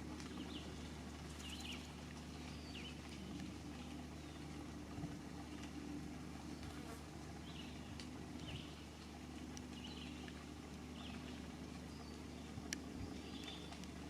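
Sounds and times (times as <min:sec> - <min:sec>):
steady low hum: 0:00.0 - 0:14.0
small birds chirping: 0:00.2 - 0:04.5, 0:07.4 - 0:14.0.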